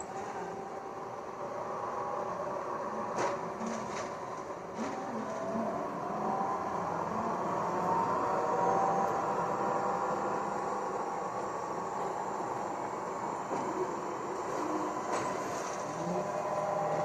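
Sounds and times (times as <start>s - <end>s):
bus engine hum: 0.0s - 17.0s
rising whine: 5.0s - 17.0s.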